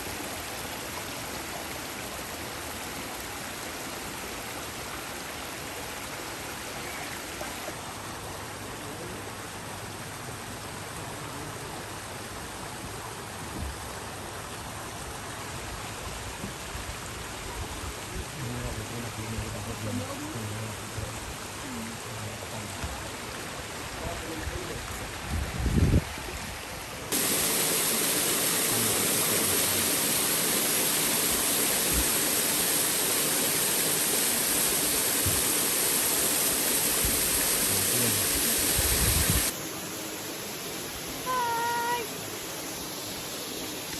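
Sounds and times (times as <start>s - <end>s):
waterfall rushing: 0.0s - 8.6s, 27.0s - 43.9s.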